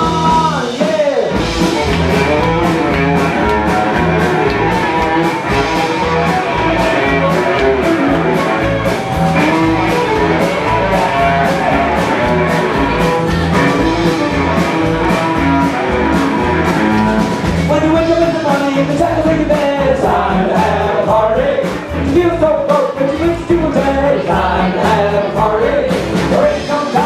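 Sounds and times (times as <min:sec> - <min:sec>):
drums on steady beat: 0:00.0 - 0:27.0
strummed amplified guitar: 0:00.0 - 0:27.0.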